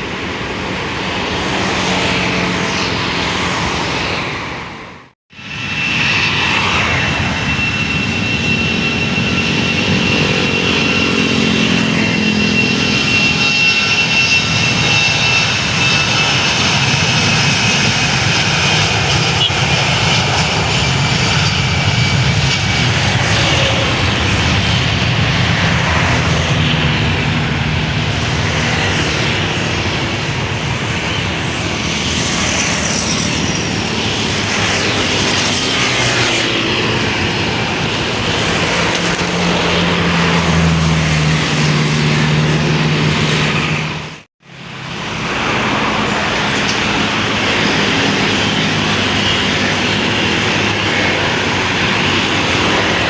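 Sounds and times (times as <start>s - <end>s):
airliner engines rumbling: 0.0s - 53.0s
high engine whine: 0.0s - 53.0s.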